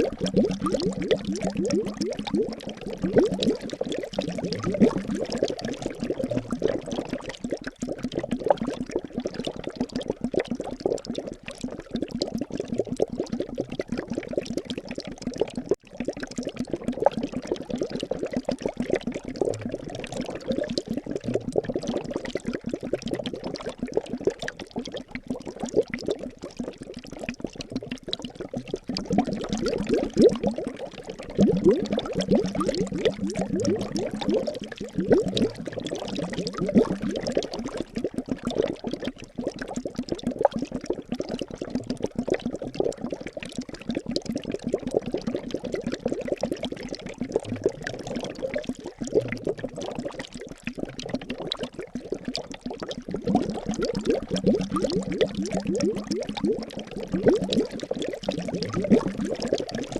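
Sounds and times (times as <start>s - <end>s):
liquid bubbling: 0.0s - 59.9s.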